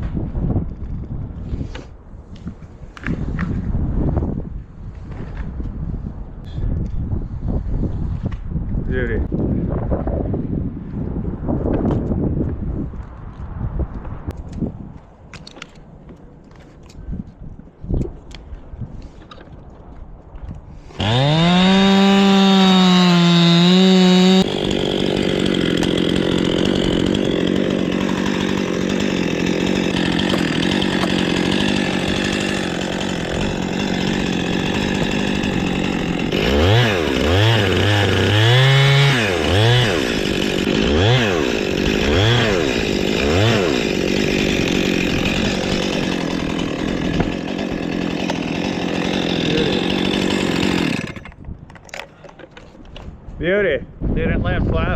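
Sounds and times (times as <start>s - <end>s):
chainsaw revving and cutting wood: 20.8s - 51.4s.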